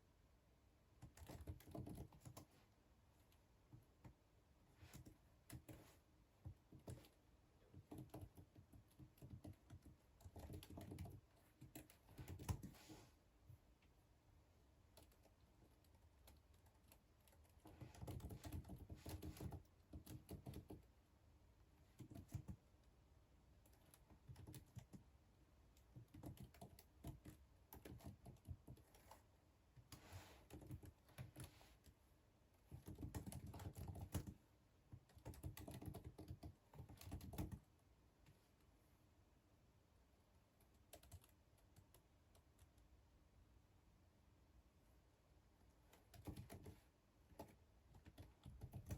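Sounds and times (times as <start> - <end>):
keyboard typing: 1.0 - 2.6, 4.8 - 12.9, 14.8 - 20.9, 21.8 - 22.7, 23.6 - 25.1, 25.7 - 32.0, 32.6 - 37.7, 40.6 - 42.8, 45.8 - 48.9.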